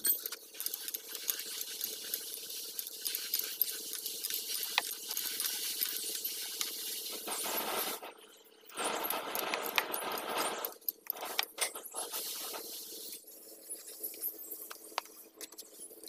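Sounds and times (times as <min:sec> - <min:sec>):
metal tools clinking and scraping: 0:00.0 - 0:12.6.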